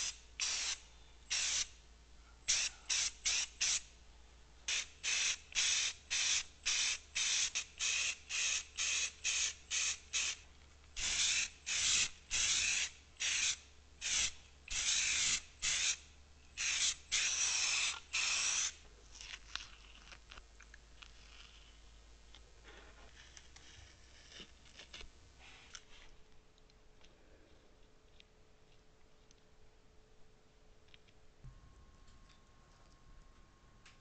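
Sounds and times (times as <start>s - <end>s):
spray paint hissing in bursts: 0.0s - 1.8s, 2.5s - 3.9s, 4.7s - 10.4s, 11.0s - 18.8s.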